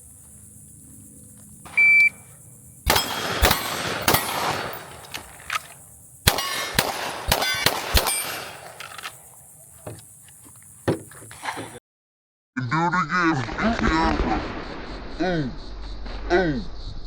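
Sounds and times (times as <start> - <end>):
shot timer beep: 1.8 - 2.2
pistol shots: 2.8 - 5.4, 6.2 - 8.8.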